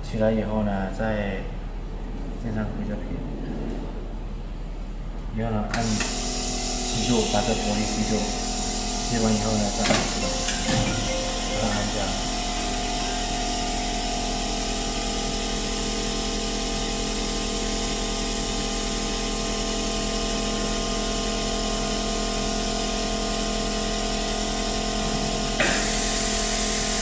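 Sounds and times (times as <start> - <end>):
machine hum and hiss: 1.4 - 27.0
loud hiss: 5.8 - 14.6, 25.6 - 27.0
steady machine tones: 6.6 - 17.0.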